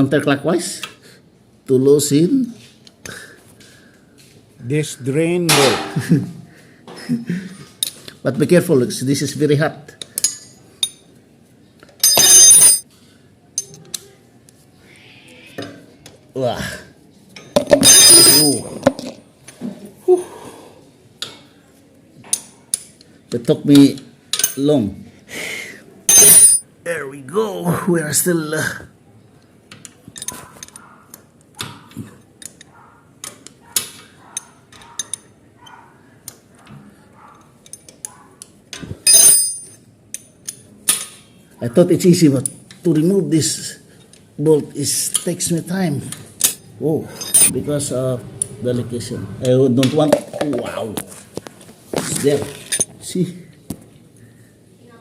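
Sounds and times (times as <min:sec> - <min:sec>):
metal wrench clinking on bolt: 0:12.0 - 0:12.8, 0:17.7 - 0:18.6, 0:24.3 - 0:24.7, 0:26.1 - 0:26.6, 0:30.2 - 0:30.9, 0:34.3 - 0:35.8, 0:39.0 - 0:41.3, 0:47.2 - 0:47.5
ringing metallic clatter: 0:12.0 - 0:12.8, 0:17.7 - 0:18.6, 0:26.1 - 0:26.6, 0:39.1 - 0:39.8.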